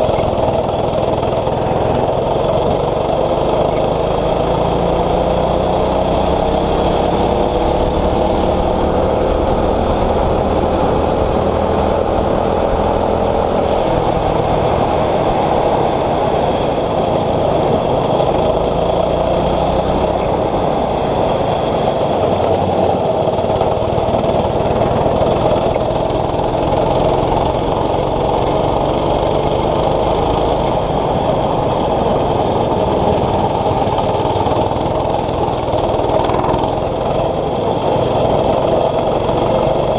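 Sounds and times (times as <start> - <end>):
kart engine accelerating: 0.0 - 39.9.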